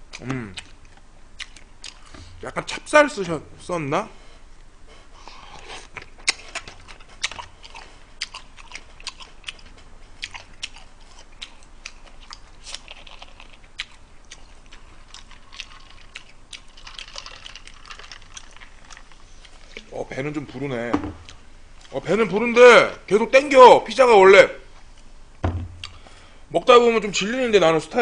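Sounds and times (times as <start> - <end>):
chewing and biting pizza: 0.1 - 2.2, 5.2 - 20.0.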